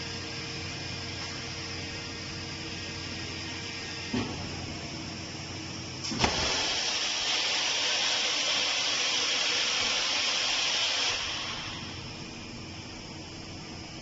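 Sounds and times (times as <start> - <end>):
machine hum: 0.0 - 14.0
pressure venting hiss: 6.0 - 14.0.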